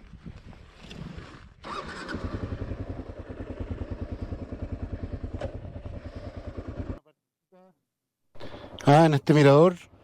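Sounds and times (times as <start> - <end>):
motorcycle engine idling: 1.7 - 7.0.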